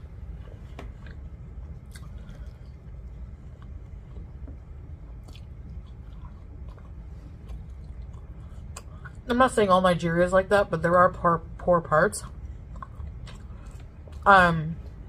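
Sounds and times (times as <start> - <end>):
chewing with wet mouth sounds: 0.0 - 9.2, 12.2 - 15.0
low steady hum: 0.0 - 15.0.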